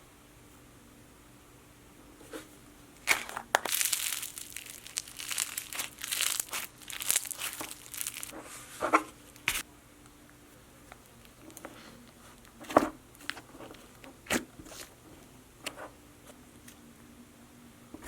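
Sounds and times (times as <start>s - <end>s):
slime crackling: 3.0s - 8.4s.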